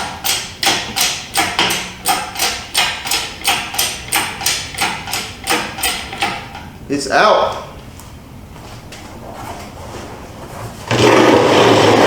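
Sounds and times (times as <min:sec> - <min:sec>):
hoist ratchet clicking: 0:00.0 - 0:06.7.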